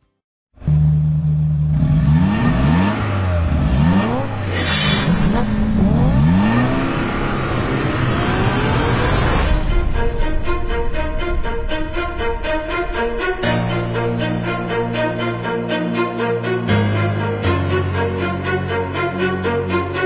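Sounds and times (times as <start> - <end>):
car engine revving: 0.6 - 15.4.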